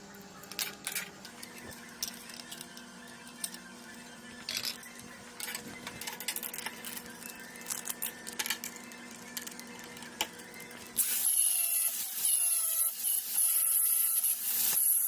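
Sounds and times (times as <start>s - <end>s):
power tool whining: 11.0s - 15.0s.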